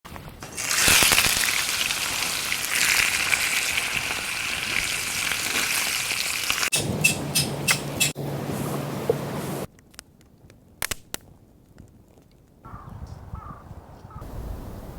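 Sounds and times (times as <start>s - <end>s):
sharp crackles: 0.1s - 6.8s, 9.7s - 12.6s
steak sizzling in a pan: 0.5s - 6.7s.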